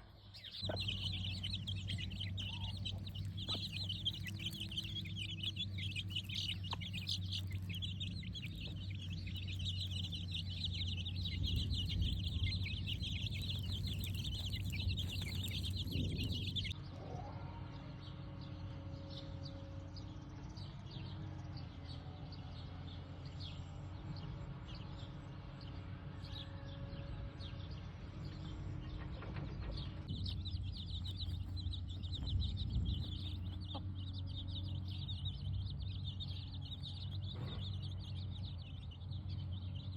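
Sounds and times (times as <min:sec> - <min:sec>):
chickens clucking: 0:00.0 - 0:16.8, 0:30.1 - 0:34.3
steady low hum: 0:00.0 - 0:16.8
high rapid chirping: 0:00.6 - 0:16.8.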